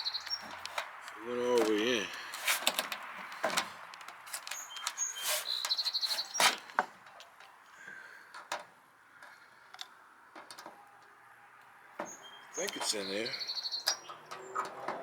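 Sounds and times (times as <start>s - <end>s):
bird trill: 0.0s - 1.6s, 4.5s - 6.7s, 12.0s - 14.7s
birds chirping: 0.0s - 15.0s.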